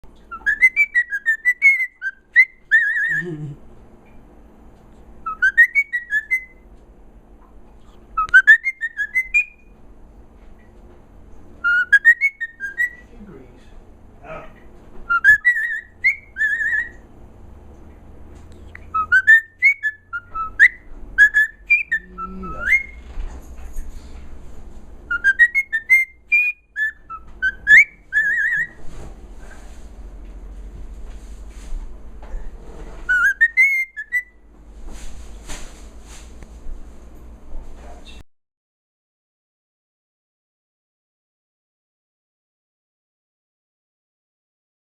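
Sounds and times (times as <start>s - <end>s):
pet bird whistling: 0.2s - 3.4s, 5.2s - 6.6s, 7.8s - 9.7s, 11.6s - 13.1s, 15.1s - 17.0s, 18.6s - 23.0s, 25.1s - 28.8s, 33.0s - 34.4s.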